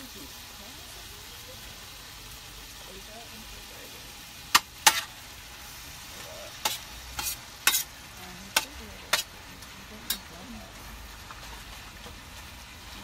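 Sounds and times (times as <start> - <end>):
food sizzling: 0.0 - 13.0
metal utensil scraping cooking surface: 4.4 - 12.1.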